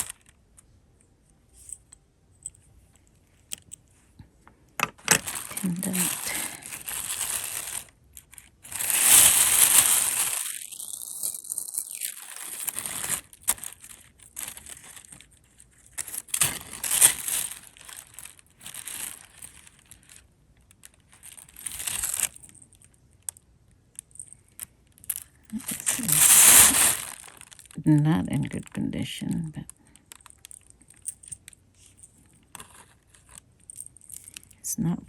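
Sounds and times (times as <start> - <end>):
plastic bag crinkling: 0.0 - 0.3, 4.8 - 22.6, 25.1 - 31.9.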